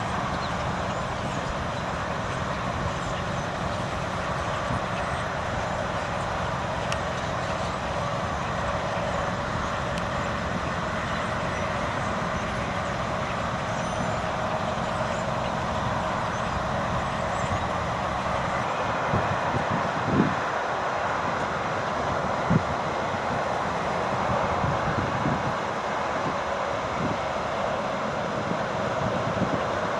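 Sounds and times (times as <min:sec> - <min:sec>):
swallow flock chattering: 0:00.0 - 0:18.9
city traffic: 0:00.0 - 0:29.9.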